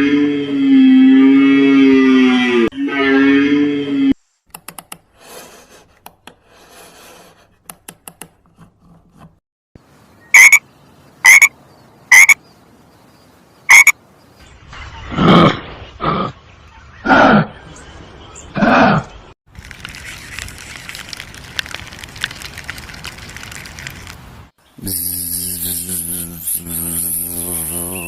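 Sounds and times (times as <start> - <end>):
frog croaking: 10.3 - 10.6, 11.2 - 12.4, 13.7 - 14.0.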